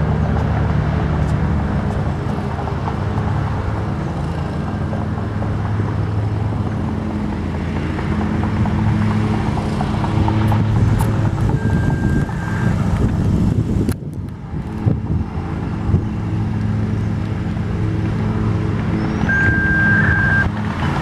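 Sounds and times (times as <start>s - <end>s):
engine humming: 0.0s - 21.0s
high-pitched tone: 11.6s - 12.9s, 19.2s - 20.5s.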